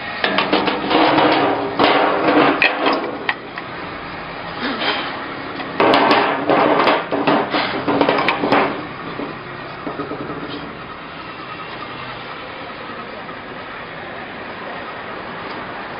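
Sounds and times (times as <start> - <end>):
sharp knocks: 0.2 - 3.4, 5.6 - 10.8.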